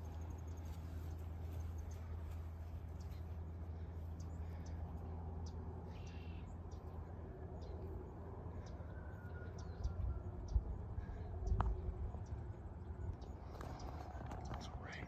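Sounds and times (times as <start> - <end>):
low steady hum: 0.0 - 15.0
faint bird chirps: 4.0 - 15.0.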